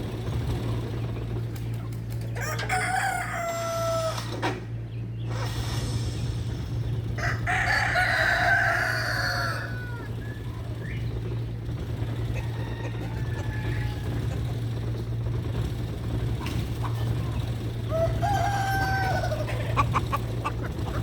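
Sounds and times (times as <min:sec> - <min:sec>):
steady low hum: 0:00.0 - 0:21.0
rooster crowing: 0:02.4 - 0:04.4, 0:07.1 - 0:10.8, 0:12.2 - 0:14.4, 0:17.8 - 0:20.2.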